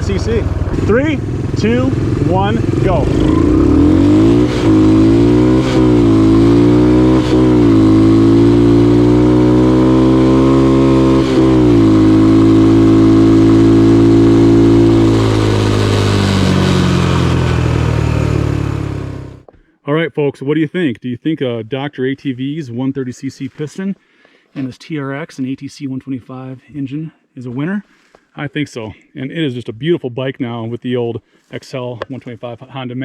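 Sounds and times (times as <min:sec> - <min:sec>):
dirt bike engine accelerating: 0:00.0 - 0:19.5.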